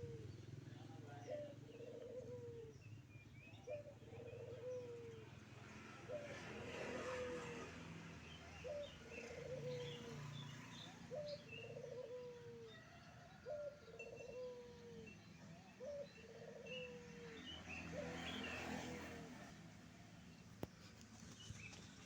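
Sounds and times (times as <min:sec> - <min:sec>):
dove cooing: 0:00.0 - 0:07.8, 0:08.4 - 0:18.7.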